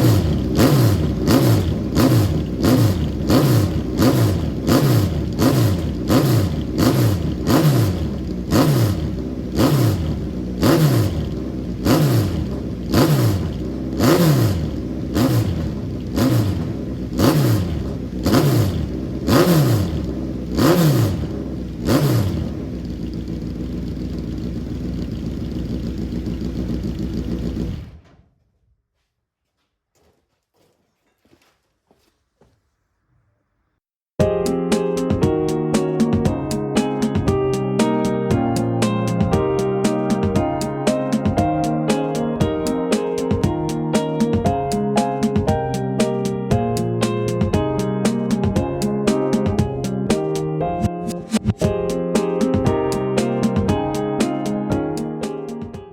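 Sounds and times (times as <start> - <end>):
racing car engine revving: 0.0 - 23.3.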